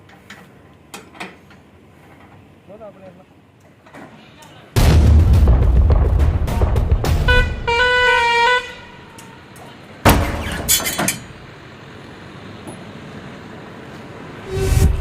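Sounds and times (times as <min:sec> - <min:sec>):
heavy low rumble: 0:04.8 - 0:08.2, 0:14.4 - 0:15.0
sharp bang: 0:04.8 - 0:08.3
vehicle horn: 0:07.2 - 0:09.5.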